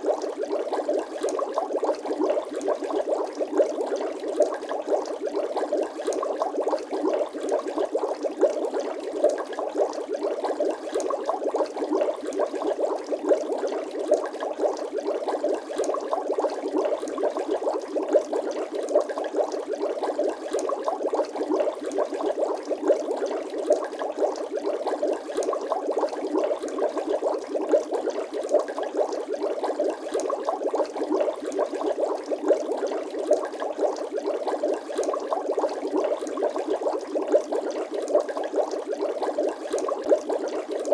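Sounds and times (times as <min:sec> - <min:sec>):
liquid bubbling: 0:00.0 - 0:40.9.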